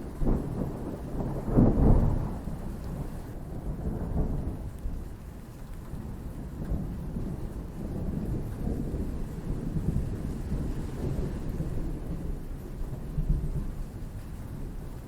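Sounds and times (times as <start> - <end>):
thunder rumbling: 0.0 - 4.8
steady rain: 0.0 - 15.0.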